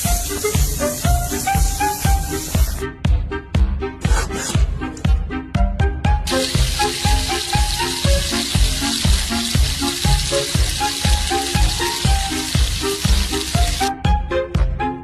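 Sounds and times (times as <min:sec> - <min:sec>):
music with a steady beat: 0:00.0 - 0:15.0
food sizzling in a frying pan: 0:06.3 - 0:13.9.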